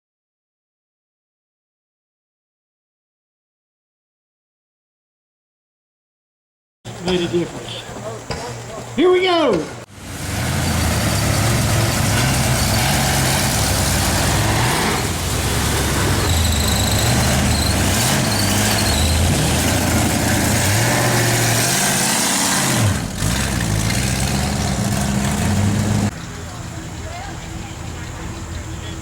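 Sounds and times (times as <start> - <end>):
car engine revving: 9.8 - 26.1.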